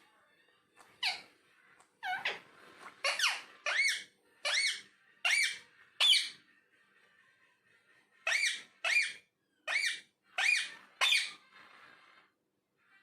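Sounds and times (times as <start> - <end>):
parakeet squawking: 0.8 - 6.6, 8.1 - 12.2.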